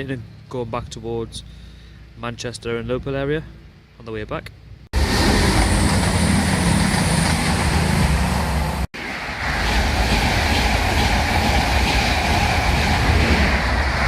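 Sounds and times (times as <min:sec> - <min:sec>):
train wheels rumbling on rails: 0:05.0 - 0:14.0.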